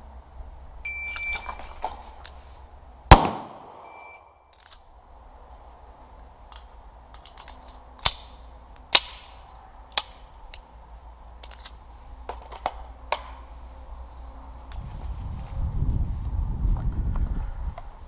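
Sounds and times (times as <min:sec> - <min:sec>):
faint gunshot cracks: 0:03.1 - 0:03.9
pistol shots: 0:03.1 - 0:04.0.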